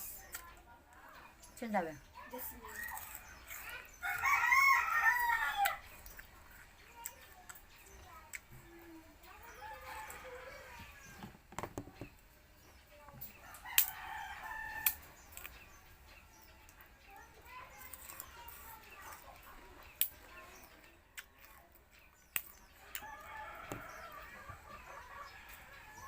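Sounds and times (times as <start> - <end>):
rooster crowing: 4.0 - 5.8.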